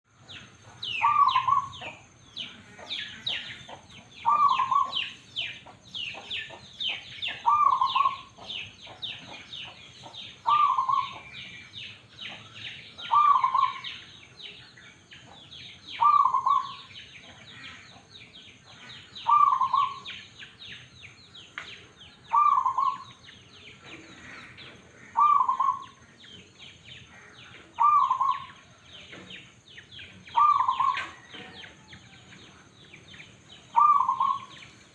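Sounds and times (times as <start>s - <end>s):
small birds chirping: 0.1s - 34.9s
dove cooing: 0.8s - 2.0s, 2.6s - 5.2s, 7.3s - 8.5s, 10.4s - 11.3s, 13.0s - 14.0s, 16.0s - 17.0s, 19.2s - 20.1s, 22.3s - 23.2s, 25.1s - 26.0s, 27.6s - 28.6s, 30.3s - 31.9s, 33.7s - 34.6s.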